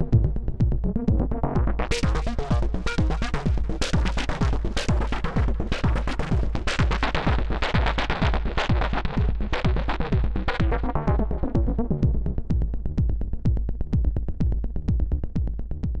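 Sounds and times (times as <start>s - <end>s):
techno synth pattern: 0.0s - 14.8s
steady kick drum: 0.0s - 16.0s.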